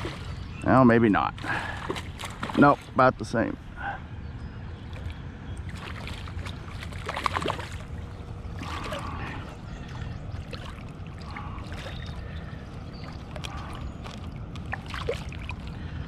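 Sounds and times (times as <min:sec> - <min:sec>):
light knocks and splashes: 0:00.0 - 0:00.4, 0:01.4 - 0:03.0, 0:04.9 - 0:15.8
river water sloshing and trickling: 0:00.0 - 0:16.0.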